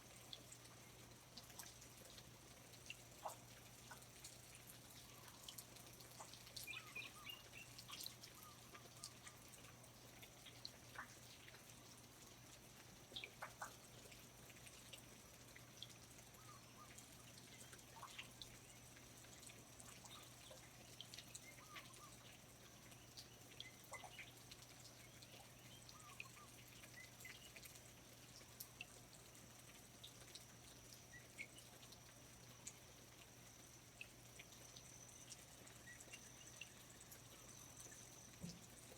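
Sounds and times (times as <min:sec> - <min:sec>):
water dripping: 0:00.0 - 0:38.9
soft bird chirps: 0:05.0 - 0:09.4, 0:16.3 - 0:19.0, 0:19.9 - 0:27.7, 0:34.6 - 0:38.9.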